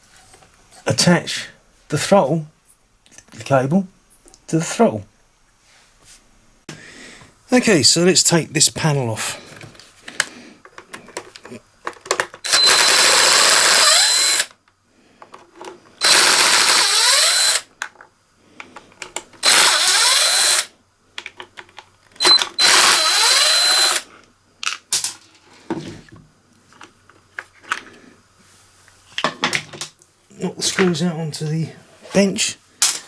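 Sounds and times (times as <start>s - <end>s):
power screwdriver whining: 12.4s - 14.5s, 16.0s - 17.7s, 19.4s - 20.7s, 22.2s - 24.1s.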